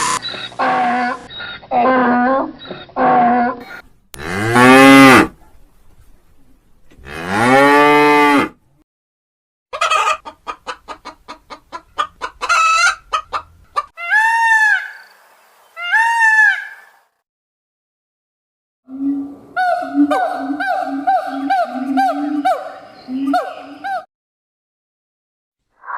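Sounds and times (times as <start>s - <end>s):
cow mooing: 4.2s - 5.3s, 7.0s - 8.6s
chicken clucking: 9.7s - 14.0s.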